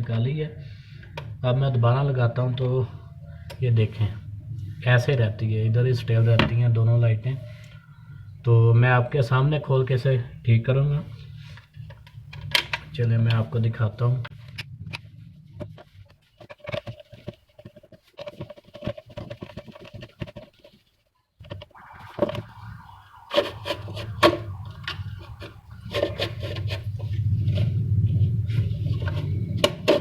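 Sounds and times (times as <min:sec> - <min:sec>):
low hum: 0:02.5 - 0:08.7, 0:21.4 - 0:30.0
plastic casing clicks and scraping: 0:14.5 - 0:20.7.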